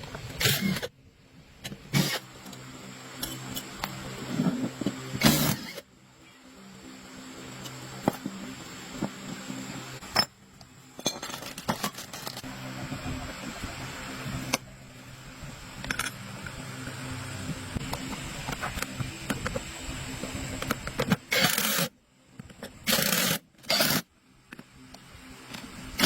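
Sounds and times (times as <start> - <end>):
steady low hum: 0.0 - 26.0
metal tools clinking: 11.0 - 12.5.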